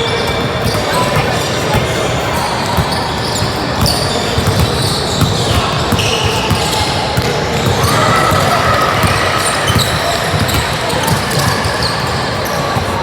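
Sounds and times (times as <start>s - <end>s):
basketball bouncing on court: 0.0s - 13.0s
din of voices: 0.7s - 4.3s.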